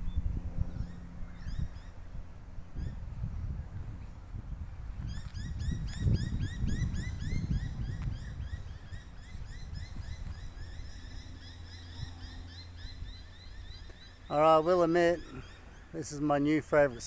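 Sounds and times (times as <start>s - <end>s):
low wind rumble: 0.0s - 17.0s
bird chirping: 5.0s - 17.0s.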